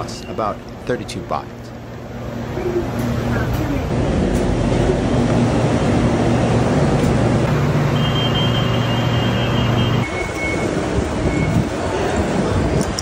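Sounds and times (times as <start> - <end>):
electric train humming: 1.4 - 13.0
high thin tone: 7.8 - 11.6.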